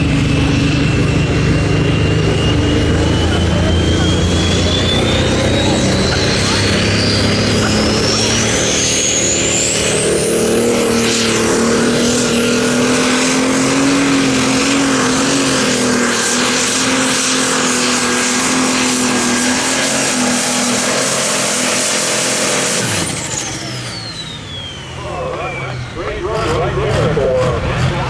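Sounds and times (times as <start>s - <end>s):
tractor diesel engine under load: 0.0s - 28.0s
high turbo whistle: 0.4s - 25.9s.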